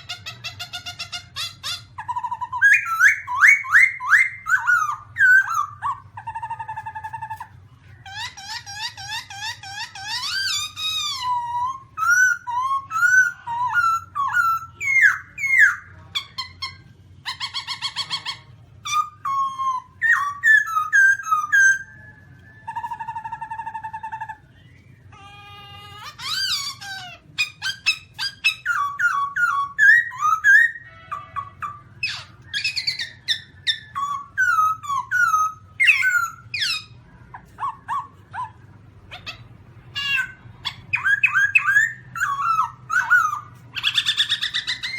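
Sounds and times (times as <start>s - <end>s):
harsh rasping bird call: 0.0s - 22.0s
bird whistling song: 0.0s - 44.9s.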